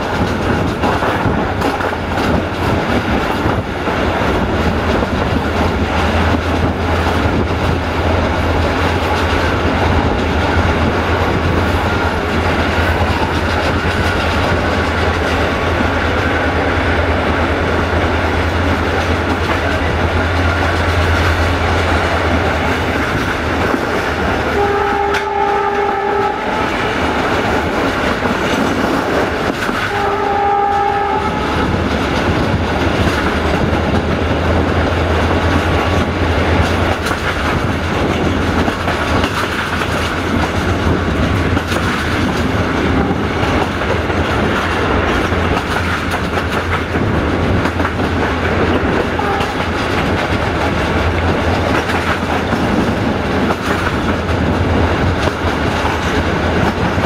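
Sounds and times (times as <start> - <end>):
train wheels rumbling on rails: 0.0 - 57.0
locomotive horn blasts: 24.5 - 27.0, 29.9 - 31.8, 49.1 - 49.7.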